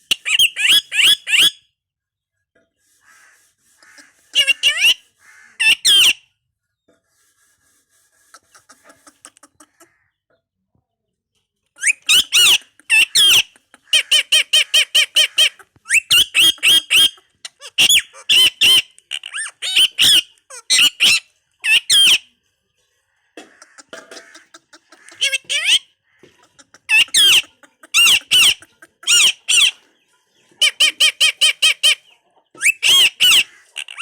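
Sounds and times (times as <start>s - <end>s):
parakeet squawking: 3.1s - 6.2s, 11.8s - 22.2s, 23.5s - 29.8s, 32.6s - 34.0s
parakeet chattering: 3.8s - 6.2s, 11.8s - 22.2s, 23.5s - 29.8s, 32.6s - 34.0s.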